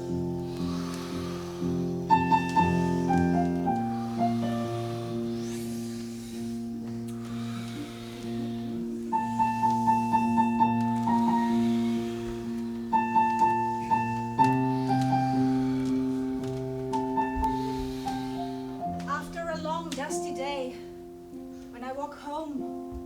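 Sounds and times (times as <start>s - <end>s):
piano chords and runs: 0.0s - 23.0s.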